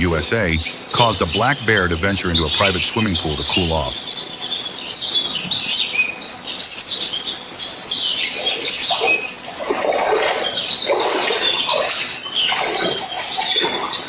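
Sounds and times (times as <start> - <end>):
short low noises: 0.0 - 4.5
birds chirping: 0.0 - 5.1.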